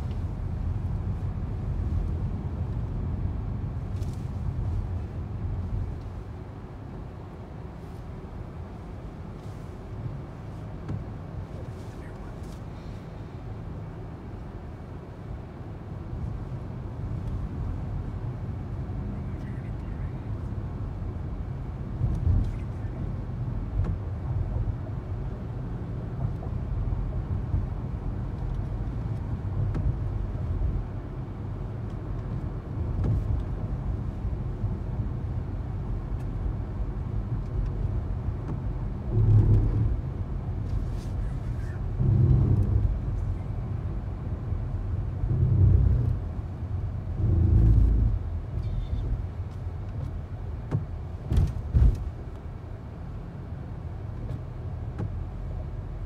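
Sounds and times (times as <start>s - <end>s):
low rumble of motor vehicles: 0.0s - 56.0s
vehicles passing close by: 16.8s - 56.0s.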